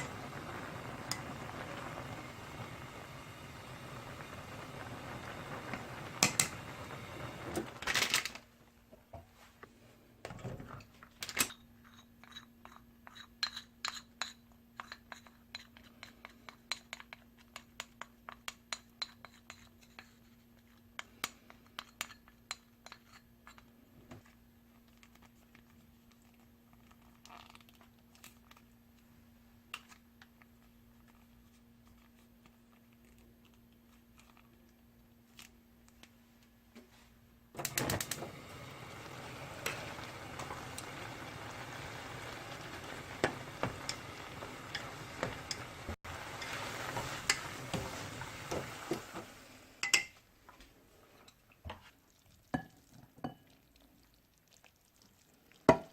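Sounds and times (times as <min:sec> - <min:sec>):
noodles sizzling in a pan: 0:00.0 - 0:08.4, 0:37.6 - 0:50.2.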